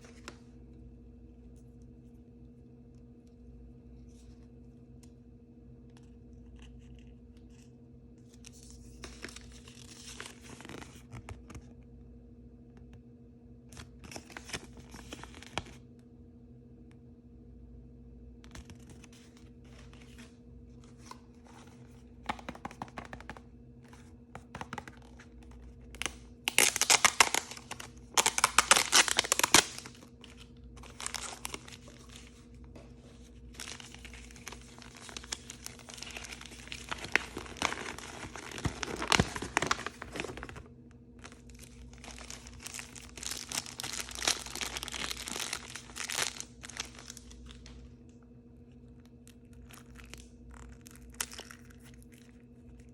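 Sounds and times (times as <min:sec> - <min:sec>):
faint steady hum: 0:00.0 - 0:52.9
packaging tearing and crinkling: 0:08.5 - 0:11.2, 0:24.5 - 0:32.5, 0:33.5 - 0:47.8, 0:49.2 - 0:52.9.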